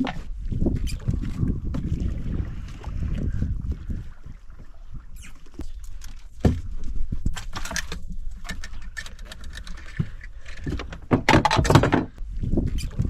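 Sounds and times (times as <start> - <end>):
knocks and rattles on a boat: 6.3 - 13.0.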